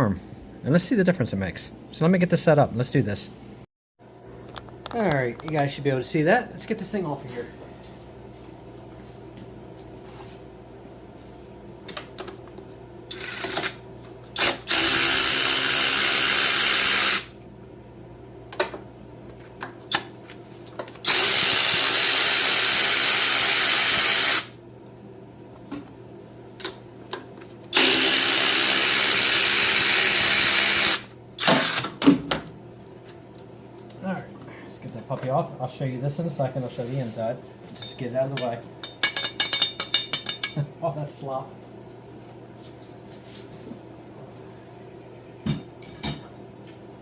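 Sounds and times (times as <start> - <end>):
power tool running: 14.4 - 17.4, 21.0 - 24.6, 27.7 - 32.0.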